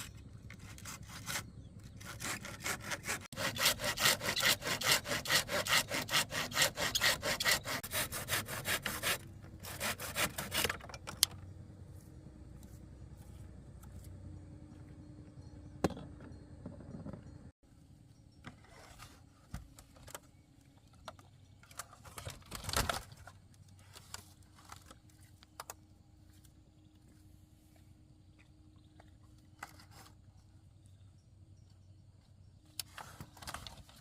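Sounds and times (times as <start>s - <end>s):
hand saw cutting: 0.0s - 10.9s.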